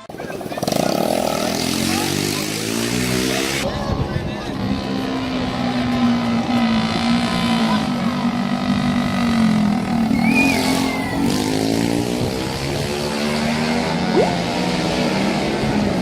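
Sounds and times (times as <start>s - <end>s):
motorcycle engines running: 0.0s - 16.0s
high whistle-like tone: 10.0s - 11.4s.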